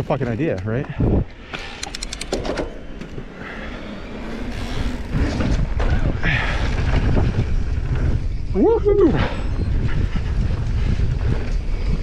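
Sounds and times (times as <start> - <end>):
wind on camera: 0.0 - 12.0
sharp clicks: 1.5 - 3.1.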